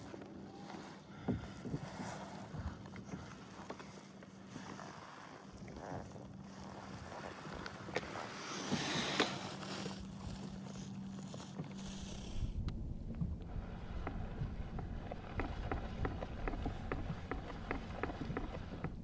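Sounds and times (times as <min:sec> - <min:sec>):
steady low hum: 0:11.8 - 0:19.0
water sloshing against kayak hull: 0:11.8 - 0:19.0
wind on microphone: 0:11.8 - 0:19.0.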